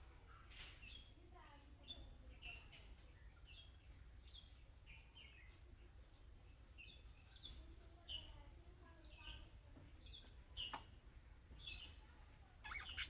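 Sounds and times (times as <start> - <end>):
budgerigars chirping: 12.6 - 13.0.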